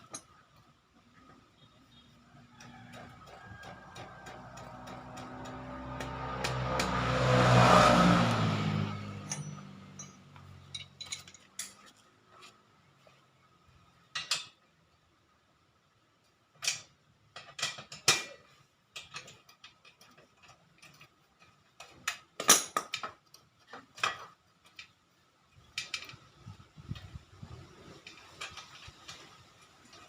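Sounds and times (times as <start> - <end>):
metallic clinks and knocks: 0.0 - 7.1, 8.3 - 12.5, 16.5 - 25.0.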